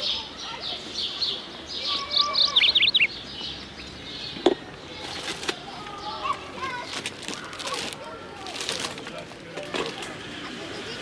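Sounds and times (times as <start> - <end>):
small birds chirping: 0.0 - 8.4.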